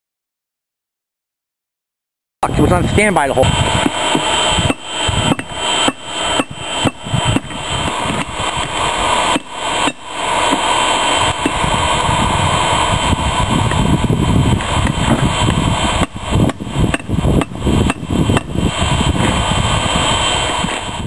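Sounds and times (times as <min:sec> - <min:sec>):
steady rushing noise: 0:02.4 - 0:21.0
hammer blows on steel: 0:03.4 - 0:11.7, 0:13.6 - 0:20.9.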